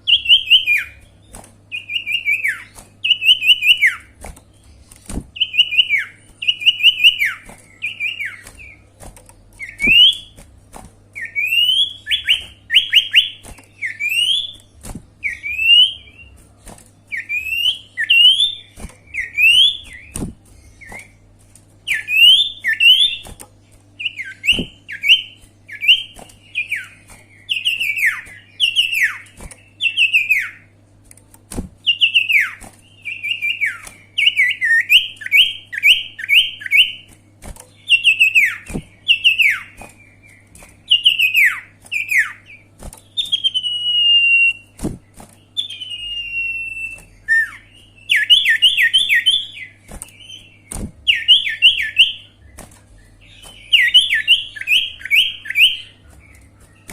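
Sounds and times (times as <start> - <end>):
steady low hum: 0.0 - 56.9
high whistled bird notes: 9.6 - 10.4, 11.2 - 14.6, 40.9 - 45.0, 45.6 - 52.4, 53.0 - 56.9.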